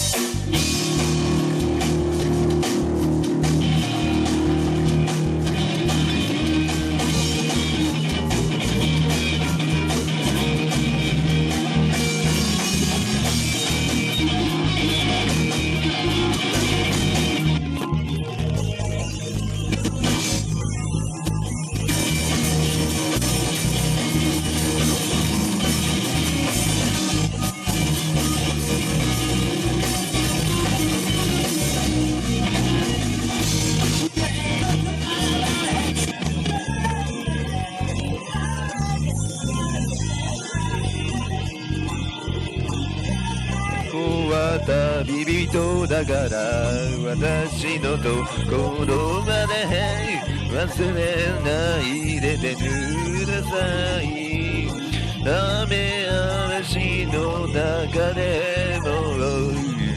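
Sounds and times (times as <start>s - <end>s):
drum kit: 0.0s - 38.1s
distorted electric guitar: 0.0s - 59.9s
instrumental rock music: 0.0s - 59.9s.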